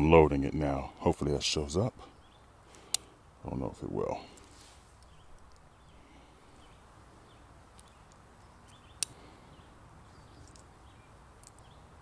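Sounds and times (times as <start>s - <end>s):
bird chirps: 2.0s - 2.6s, 5.0s - 12.0s.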